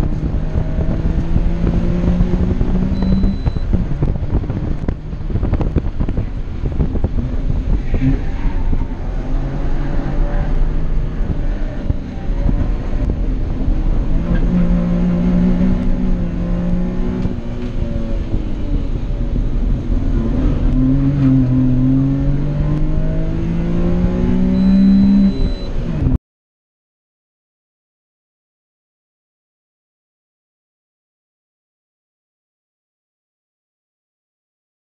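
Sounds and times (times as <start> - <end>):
small car engine accelerating: 0.0 - 26.2.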